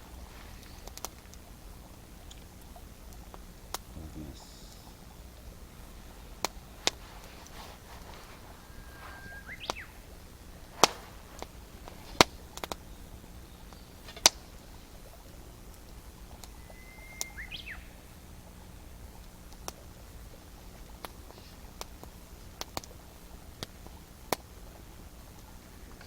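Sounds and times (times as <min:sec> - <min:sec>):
songbird whistling: 0:06.2 - 0:15.3, 0:16.3 - 0:18.2.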